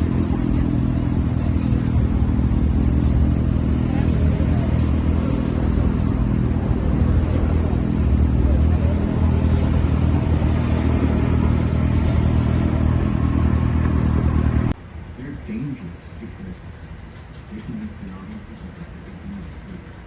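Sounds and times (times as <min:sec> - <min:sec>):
low motor hum: 0:00.0 - 0:14.8.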